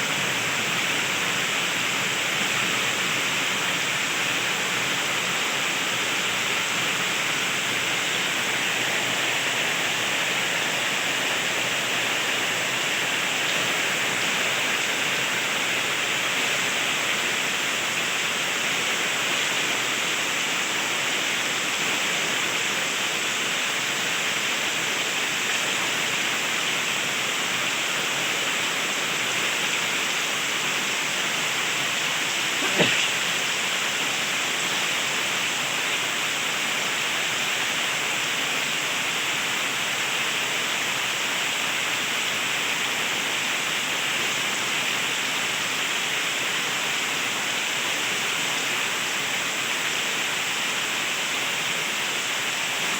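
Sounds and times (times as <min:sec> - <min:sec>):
heavy rain falling: 0:05.8 - 0:36.7.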